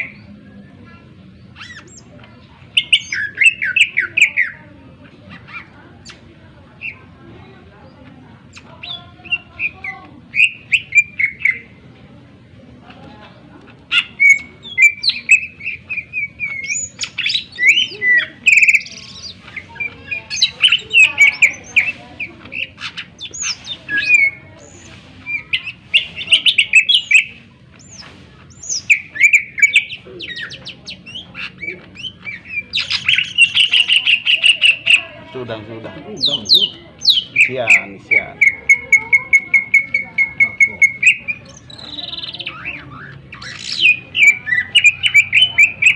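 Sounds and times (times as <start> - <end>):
bird singing chirps and whistles: 8.5 - 11.7, 14.0 - 35.0, 36.2 - 45.9.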